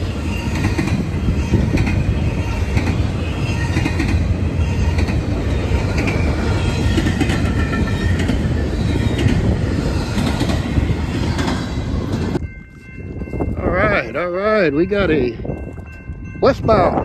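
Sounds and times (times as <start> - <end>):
train wheels squealing: 0.0 - 11.8
freight train wheels rumbling: 0.0 - 17.0.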